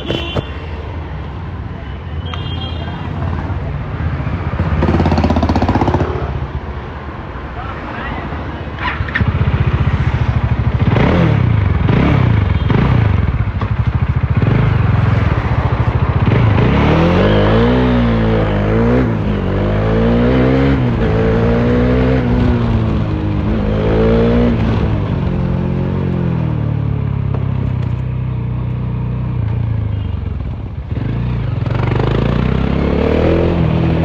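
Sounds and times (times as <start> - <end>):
motorcycle engine revving and accelerating: 4.5 - 6.4, 8.9 - 28.0, 30.8 - 34.0.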